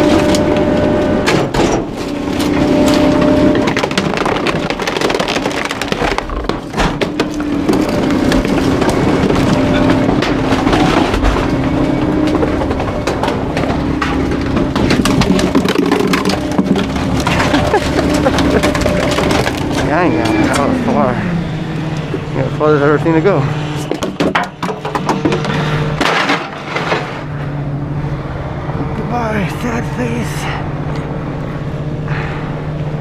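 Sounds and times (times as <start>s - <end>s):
wood cracking and splintering: 0.0s - 21.0s, 23.8s - 27.3s
garbage truck engine and hydraulics: 0.0s - 29.3s.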